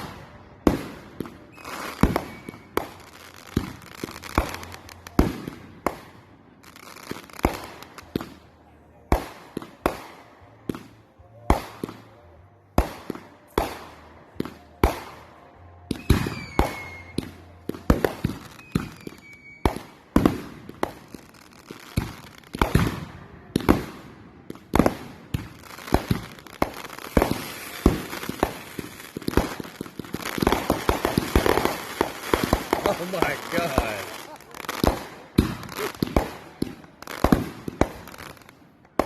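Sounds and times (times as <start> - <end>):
fireworks bangs and crackling: 0.0 - 39.0
firework whistles: 1.5 - 3.0, 16.0 - 17.3, 18.5 - 19.8.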